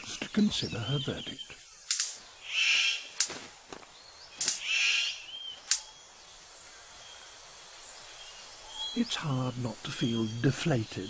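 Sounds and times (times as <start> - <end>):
faint forest background: 0.0 - 11.0
bird harsh hissing calls: 1.0 - 3.3, 4.3 - 9.4
sharp bird clicks: 1.8 - 3.4, 4.3 - 6.0.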